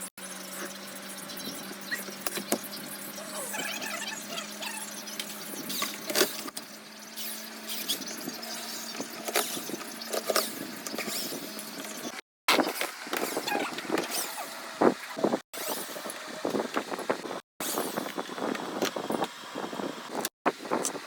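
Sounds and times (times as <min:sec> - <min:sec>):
short high squeaks: 0:00.5 - 0:12.7.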